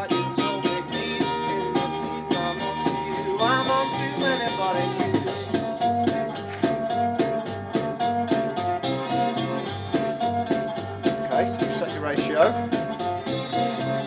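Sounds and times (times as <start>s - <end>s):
bass notes: 0.0s - 14.0s
drum kit beat: 0.0s - 14.0s
guitar: 0.0s - 14.0s.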